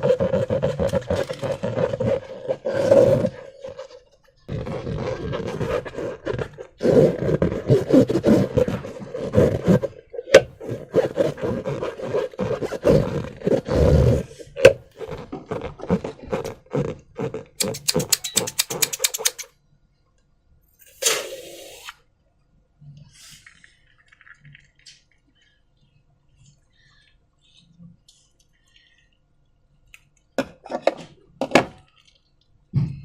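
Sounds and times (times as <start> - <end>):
slime balloons squishing: 0.0 - 19.5
squeaky rubber rubbing: 4.5 - 19.5
quick run of clicks: 17.6 - 19.5.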